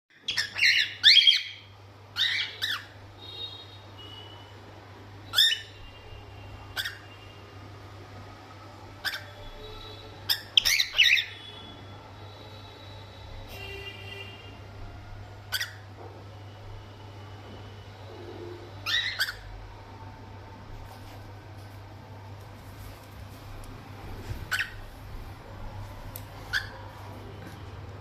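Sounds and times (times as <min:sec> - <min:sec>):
parrot chirping: 0:00.1 - 0:03.0, 0:05.3 - 0:05.8, 0:06.7 - 0:07.2, 0:09.0 - 0:09.6, 0:10.3 - 0:11.5, 0:15.5 - 0:15.9, 0:18.8 - 0:19.6, 0:24.3 - 0:25.1, 0:26.4 - 0:26.9.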